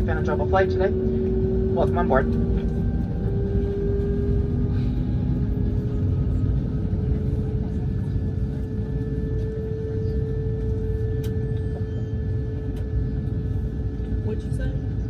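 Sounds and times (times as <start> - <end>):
aircraft cabin low rumble: 0.0 - 15.0
mid-pitched hum rising in pitch: 0.0 - 15.0.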